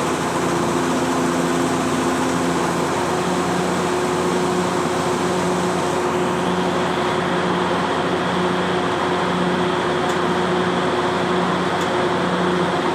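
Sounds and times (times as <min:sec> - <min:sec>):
heavy machinery engine running: 0:00.0 - 0:07.3.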